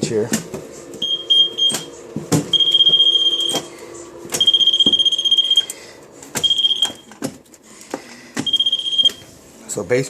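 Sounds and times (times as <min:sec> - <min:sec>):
high alarm beep: 0:01.0 - 0:01.9, 0:02.5 - 0:03.7, 0:04.4 - 0:05.7, 0:06.4 - 0:07.1, 0:08.4 - 0:09.2.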